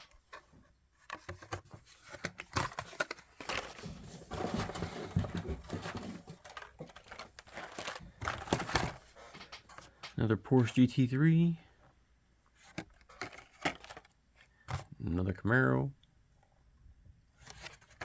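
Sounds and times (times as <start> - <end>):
plastic blister packs crinkling: 1.0 - 10.2, 12.6 - 14.9, 17.4 - 18.0.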